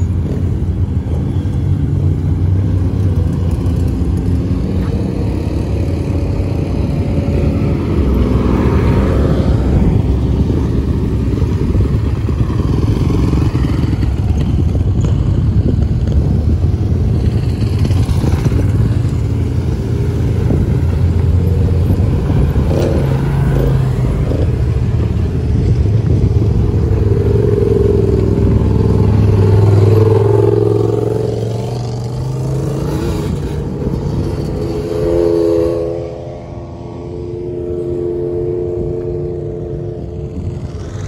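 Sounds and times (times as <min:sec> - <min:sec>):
off-road vehicle engines driving past: 0:00.0 - 0:41.0.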